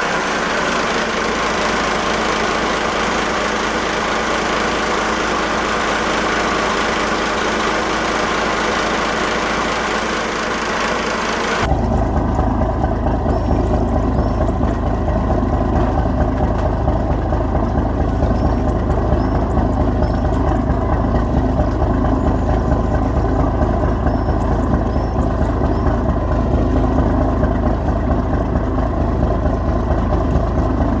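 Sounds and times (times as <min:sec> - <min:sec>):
boat diesel engine rumbling: 0:00.0 - 0:31.0.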